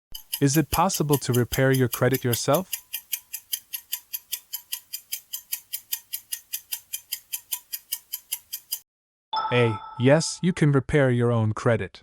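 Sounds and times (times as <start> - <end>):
fast clock ticking: 0.1 - 8.8.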